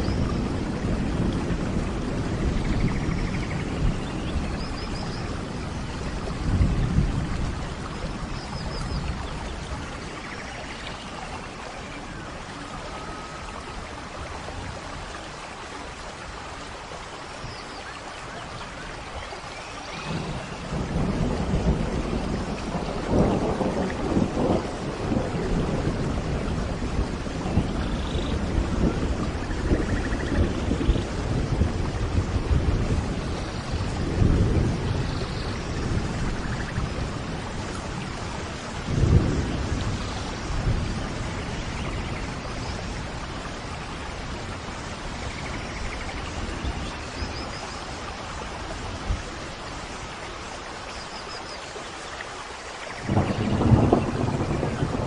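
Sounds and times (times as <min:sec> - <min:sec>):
low rolling thunder: 0:00.0 - 0:10.4, 0:19.9 - 0:47.5, 0:52.9 - 0:55.0
heavy rain: 0:00.0 - 0:55.0.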